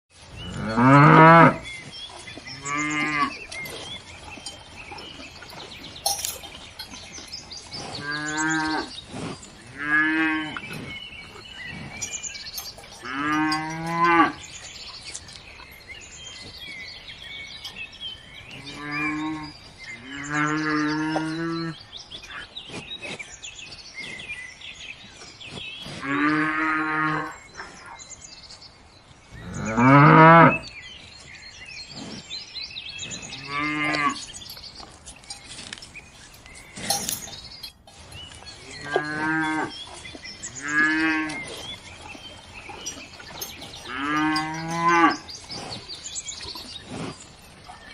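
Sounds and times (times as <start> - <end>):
cows mooing: 0.4 - 15.8, 18.3 - 21.8, 29.4 - 30.7, 33.2 - 34.6, 36.8 - 47.7.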